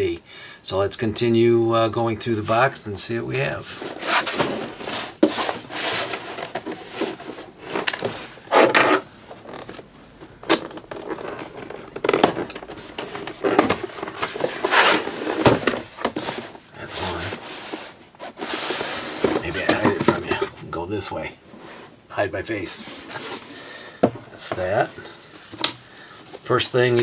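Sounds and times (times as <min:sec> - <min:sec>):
cardboard box being opened: 0:03.6 - 0:09.9.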